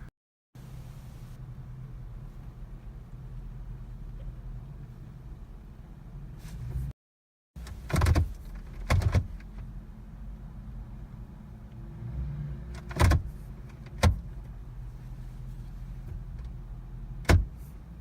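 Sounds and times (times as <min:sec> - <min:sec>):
clunks and knocks in car cabin: 0:07.6 - 0:09.5, 0:12.8 - 0:14.3, 0:17.2 - 0:17.7.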